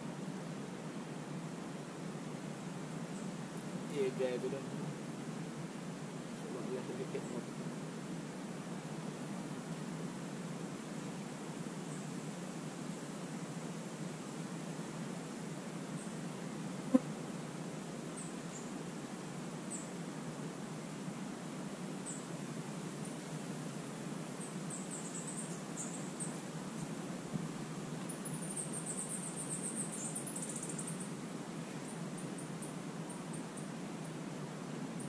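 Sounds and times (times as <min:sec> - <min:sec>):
steady outdoor hiss: 0:00.0 - 0:35.0
small birds chirping: 0:06.4 - 0:07.6, 0:24.4 - 0:27.0, 0:27.6 - 0:34.2.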